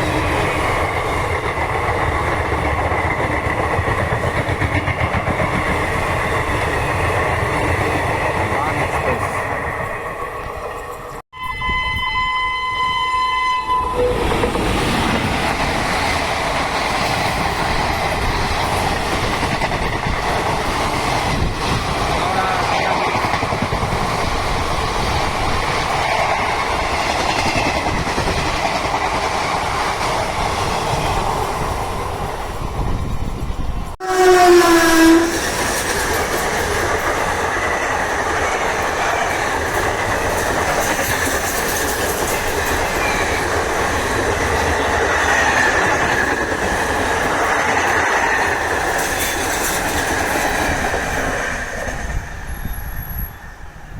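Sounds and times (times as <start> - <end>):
train running past: 0.0 - 53.9
loud horn blast: 11.3 - 14.3, 34.0 - 35.4
locomotive horn: 11.3 - 14.5, 34.0 - 35.4.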